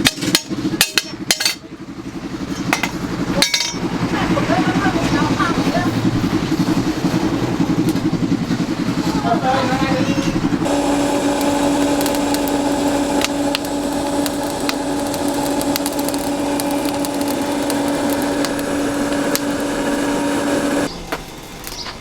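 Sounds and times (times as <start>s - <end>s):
power tool motor running: 6.8s - 20.9s
hiss: 10.7s - 20.9s.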